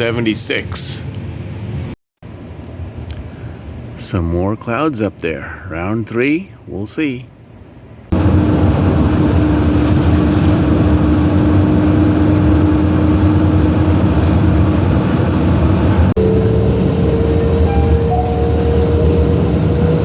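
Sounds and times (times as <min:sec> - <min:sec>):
vehicle running noise: 0:08.1 - 0:20.0
motor whine: 0:08.2 - 0:20.0.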